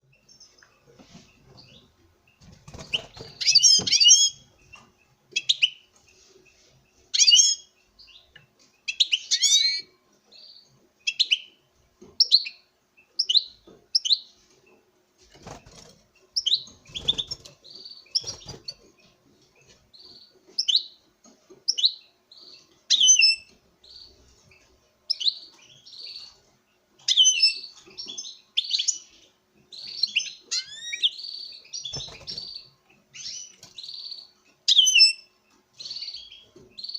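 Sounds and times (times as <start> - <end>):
goldfinch twittering song: 1.6 - 5.8, 15.4 - 21.0, 27.1 - 36.9.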